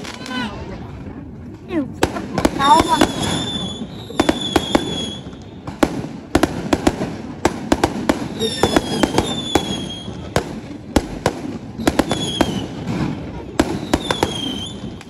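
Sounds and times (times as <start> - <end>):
firework crackling: 0.0 - 15.0
firework whistles: 2.6 - 5.9, 8.2 - 10.4, 11.7 - 15.0.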